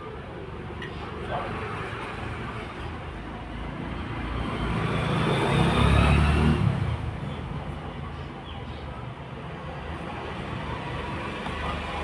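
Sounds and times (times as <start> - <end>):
vehicle engine passing by: 4.4 - 7.2.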